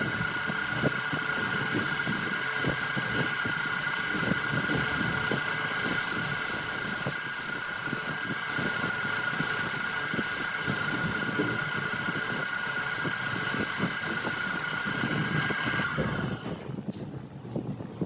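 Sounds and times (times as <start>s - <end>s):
wood being worked hiss: 0.0s - 16.2s
wood lathe whining: 0.0s - 16.7s.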